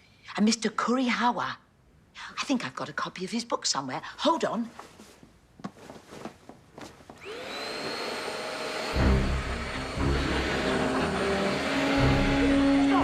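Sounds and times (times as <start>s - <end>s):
vacuum cleaner motor whining: 7.2s - 13.0s.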